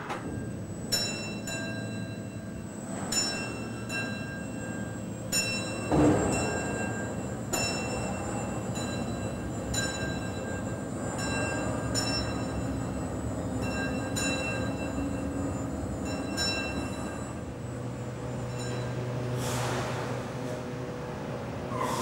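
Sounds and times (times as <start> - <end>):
bell-like chimes: 0.9 - 13.0, 13.6 - 17.4, 18.3 - 19.0
train rumbling: 2.8 - 22.0.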